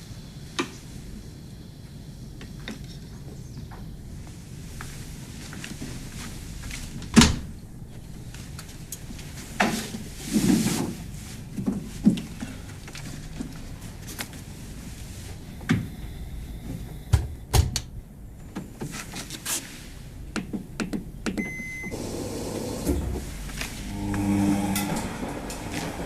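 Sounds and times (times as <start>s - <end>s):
washing machine humming: 0.0s - 19.1s, 19.8s - 26.0s
knocks and clicks of handling: 20.3s - 21.6s.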